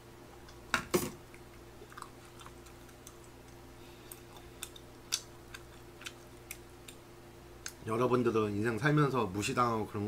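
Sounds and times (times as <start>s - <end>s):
man chewing: 1.3s - 7.0s
wet mouth smacks and clicks: 2.0s - 7.0s.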